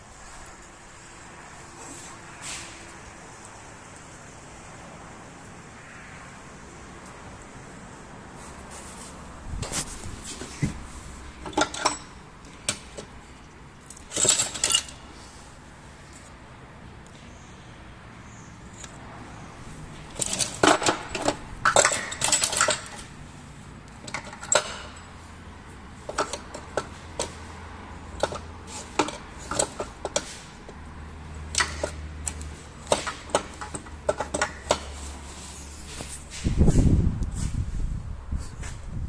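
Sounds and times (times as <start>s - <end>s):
metal tools clinking: 11.4s - 13.1s, 13.8s - 15.1s, 20.0s - 23.1s, 24.0s - 25.2s, 28.2s - 30.4s.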